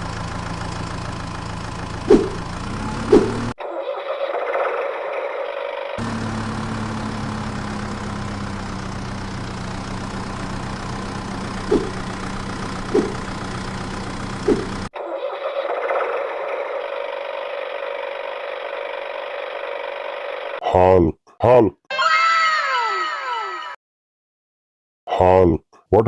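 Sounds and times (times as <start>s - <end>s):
short engine blips: 0.0s - 20.6s
thin engine drone: 0.0s - 20.6s
vehicle engine humming: 0.0s - 20.6s.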